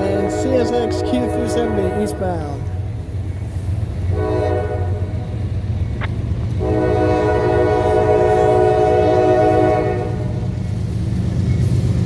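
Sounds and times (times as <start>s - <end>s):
train air horn blasts: 0.0s - 2.8s, 4.1s - 5.1s, 6.6s - 10.5s
locomotive engine rumble: 0.0s - 12.0s.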